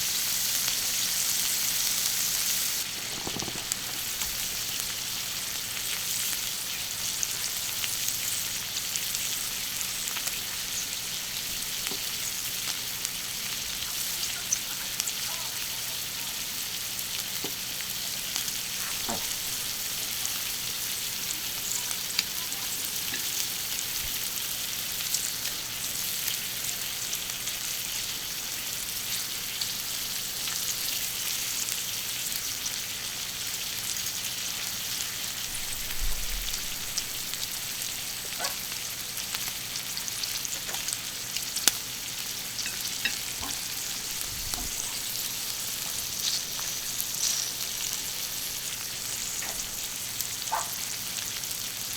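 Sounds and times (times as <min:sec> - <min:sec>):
food sizzling on griddle: 0:00.0 - 0:51.9
fat popping and spitting: 0:02.8 - 0:04.3.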